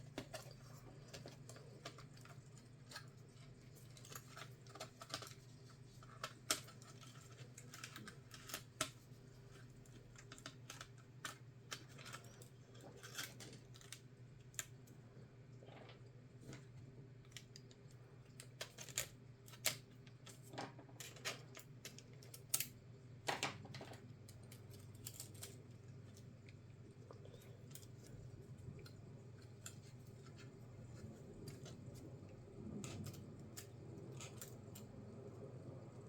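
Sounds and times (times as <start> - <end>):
small tools clicking and tapping: 0.1 - 5.4, 6.0 - 14.8, 17.3 - 22.8, 23.4 - 26.3
steady low hum: 23.9 - 36.0.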